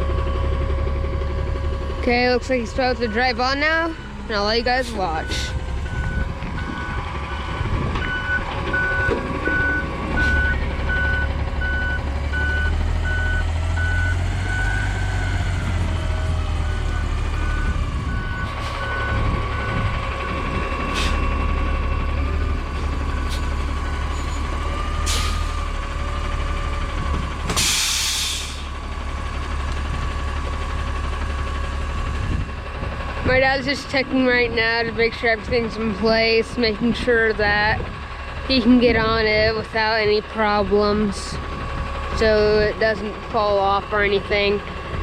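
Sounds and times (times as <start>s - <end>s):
truck diesel engine running: 0.0s - 45.0s
reverse alarm beeping: 2.7s - 15.4s
air brake hiss: 27.6s - 28.7s.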